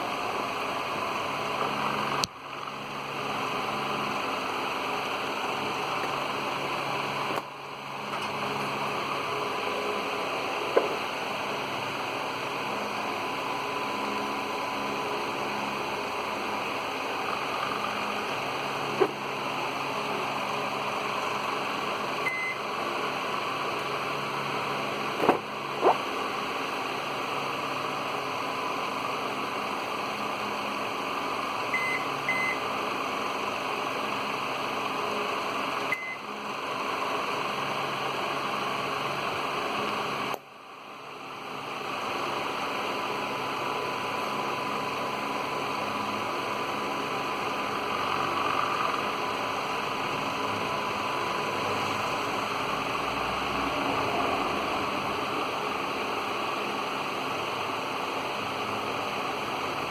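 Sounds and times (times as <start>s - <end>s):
microwave buzzer beeps: 22.2s - 22.7s, 31.7s - 32.7s, 35.9s - 36.3s.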